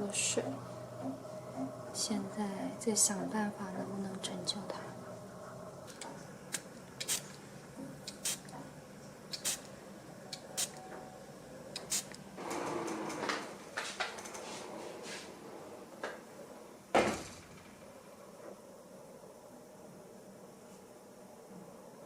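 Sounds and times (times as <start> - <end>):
rustling and scraping: 12.6 - 15.7.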